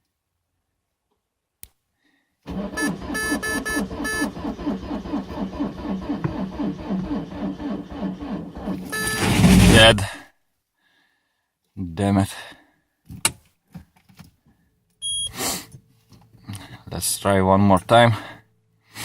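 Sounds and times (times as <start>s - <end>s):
starter motor cranking engine: 2.5s - 9.9s
short high beeps: 8.9s - 9.4s, 15.0s - 15.3s.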